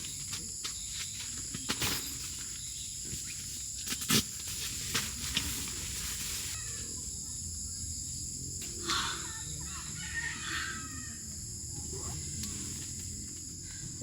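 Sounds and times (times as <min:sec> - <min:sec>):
insects droning: 0:00.0 - 0:14.0
rooster crowing: 0:08.8 - 0:11.7.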